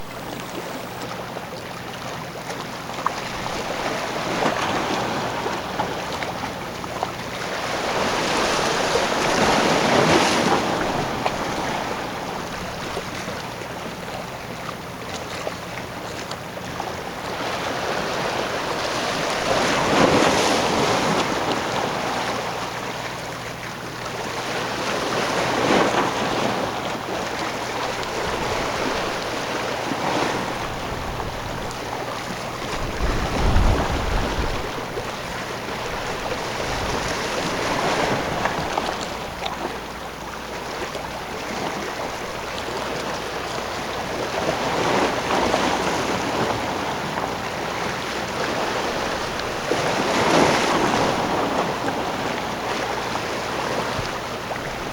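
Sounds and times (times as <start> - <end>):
water washing and surging: 0.0 - 1.0, 2.8 - 54.9
wind on microphone: 0.0 - 1.1, 27.8 - 39.0.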